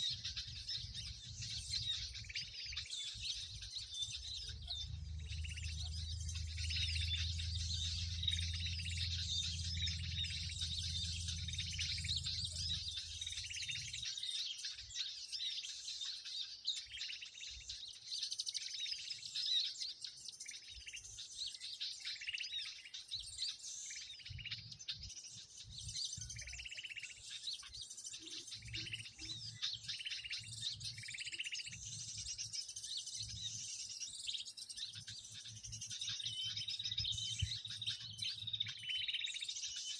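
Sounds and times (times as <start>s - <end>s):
many small birds twittering: 0.0s - 39.9s
low hum: 4.1s - 14.0s.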